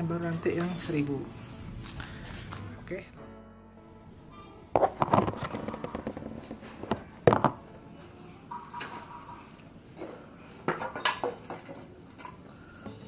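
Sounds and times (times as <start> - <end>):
hard objects knocking and clattering: 4.7 - 7.6, 10.0 - 12.3.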